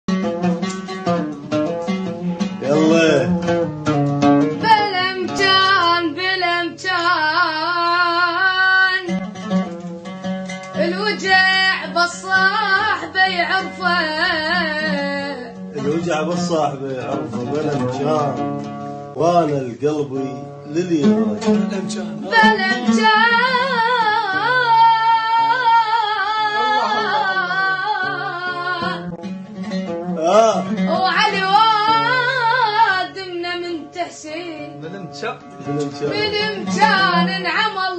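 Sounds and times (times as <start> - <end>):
instrumental accompaniment: 0.1 - 37.9
plucked strings: 0.1 - 37.9
child singing: 4.6 - 9.1, 10.8 - 15.5, 22.2 - 29.1, 30.9 - 34.7, 36.1 - 37.9.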